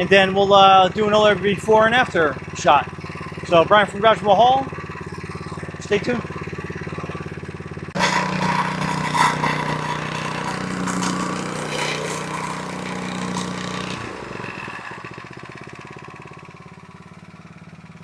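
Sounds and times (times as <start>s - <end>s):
plate compactor engine: 0.0s - 18.0s
vibrating plate rattling on stone: 4.8s - 15.5s.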